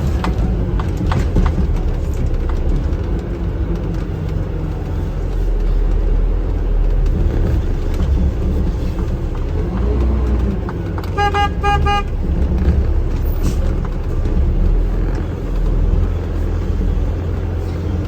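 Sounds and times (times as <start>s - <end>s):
engine and road rumble: 0.0s - 18.0s
vehicle horn tooting: 11.1s - 12.2s.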